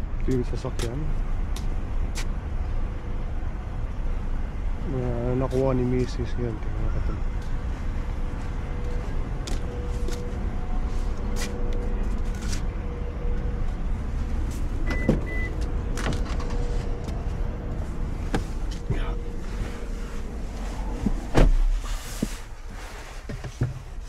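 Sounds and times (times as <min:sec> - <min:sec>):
car engine rumble: 0:00.0 - 0:24.0
car door shutting: 0:14.8 - 0:17.2, 0:20.8 - 0:22.4.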